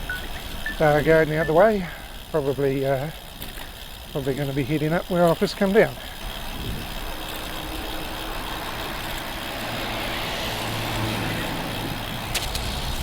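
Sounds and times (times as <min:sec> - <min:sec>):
wind and road noise: 0:00.0 - 0:13.0
motor vehicle passing: 0:06.0 - 0:13.0.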